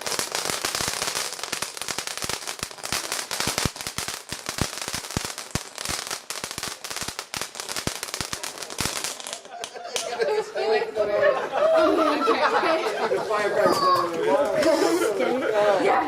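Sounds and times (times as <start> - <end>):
fireworks cracking and banging: 0.0 - 10.5.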